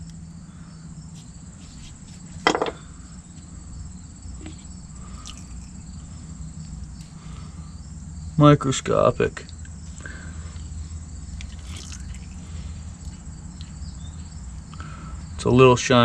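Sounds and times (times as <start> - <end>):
insects chirring: 0.0 - 16.0
low background rumble: 0.0 - 16.0.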